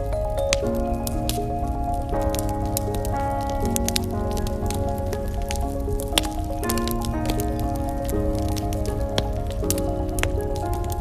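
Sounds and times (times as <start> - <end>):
slow piano notes: 0.0 - 11.0
wood fire crackling: 0.0 - 11.0.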